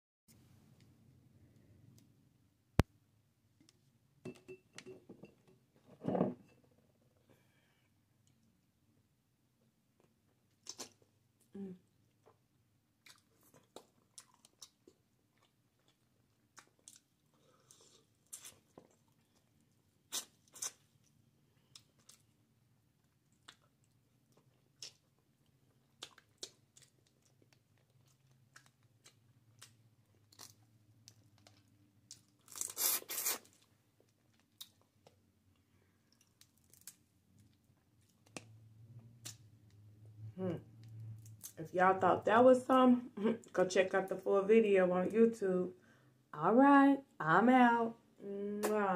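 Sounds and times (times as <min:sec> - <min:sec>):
faint low hum: 0:34.0 - 0:47.2.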